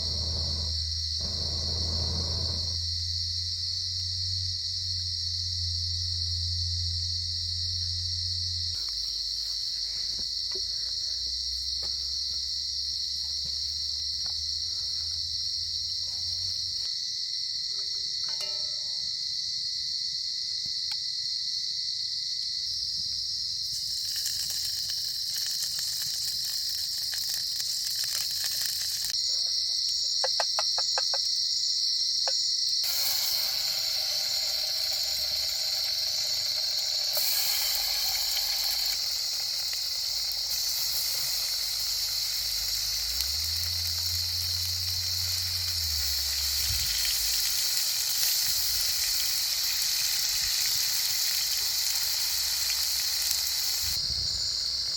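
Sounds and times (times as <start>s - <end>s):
hiss: 0.0s - 2.9s, 23.6s - 29.2s, 32.8s - 54.9s
insects droning: 0.0s - 54.9s.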